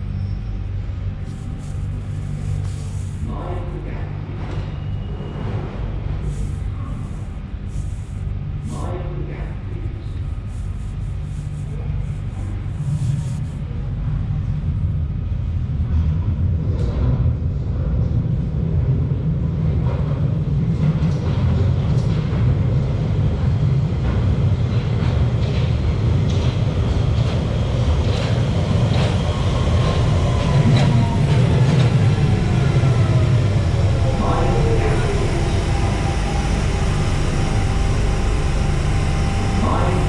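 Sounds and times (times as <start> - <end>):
train rumbling along track: 0.0 - 40.0
whine sliding down in pitch: 29.9 - 40.0.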